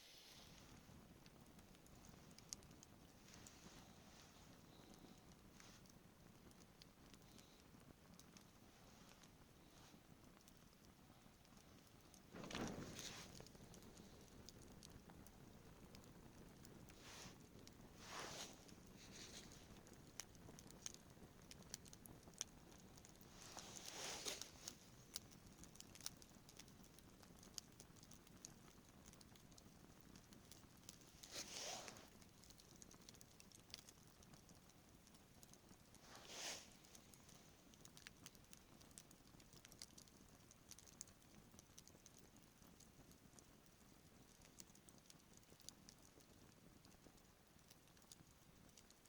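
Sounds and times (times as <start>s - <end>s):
soft hissing: 0.0s - 1.0s, 3.1s - 5.9s, 8.6s - 10.1s, 12.2s - 14.5s, 16.8s - 19.9s, 23.2s - 25.3s, 31.1s - 32.2s, 35.9s - 37.6s
campfire crackling: 0.0s - 49.0s.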